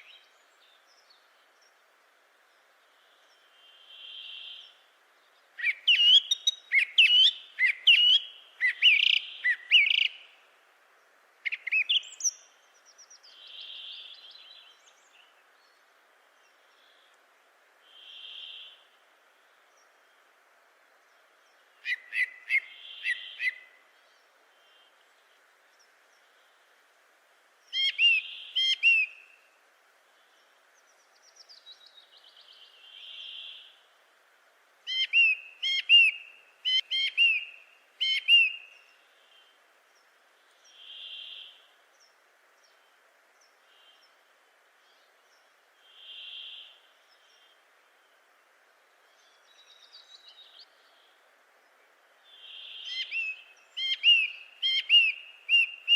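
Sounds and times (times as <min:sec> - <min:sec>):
faint background hiss: 0:00.0 - 0:55.9
birds chirping: 0:49.0 - 0:55.9.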